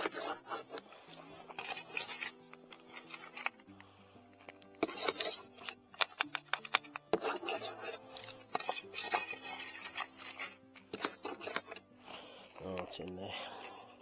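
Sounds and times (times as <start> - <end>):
gravelly dirt scraping and crunching: 12.6 - 14.0.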